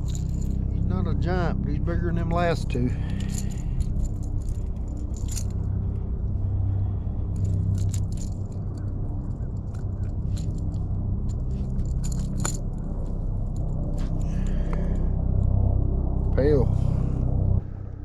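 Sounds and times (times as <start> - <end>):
steady low hum: 0.0 - 18.0
sharp clicks and rattling: 3.1 - 5.6, 9.6 - 12.8.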